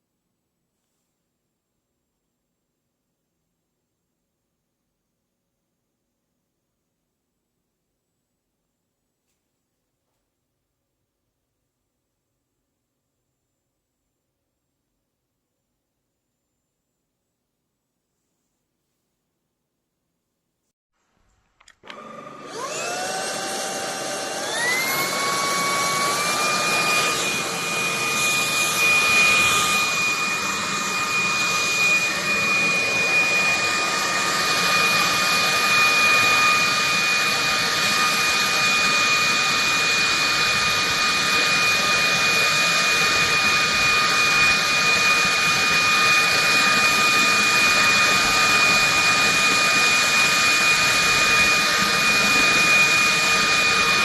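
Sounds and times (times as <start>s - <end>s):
stick vacuum motor whine: 21.6s - 54.0s.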